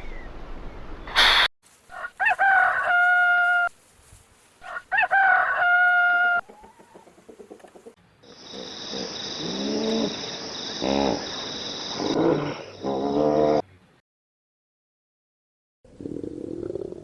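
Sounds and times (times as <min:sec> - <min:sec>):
short loud burst of noise: 0:01.1 - 0:01.5
rooster crowing: 0:01.9 - 0:03.7, 0:04.6 - 0:06.6.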